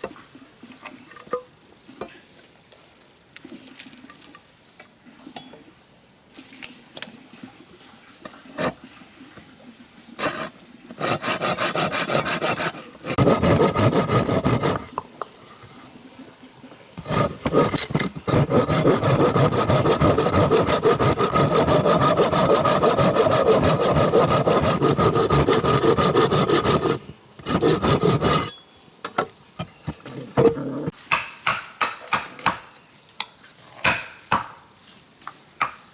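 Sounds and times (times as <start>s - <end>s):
saw cutting through wood: 10.2s - 14.9s, 17.0s - 28.5s.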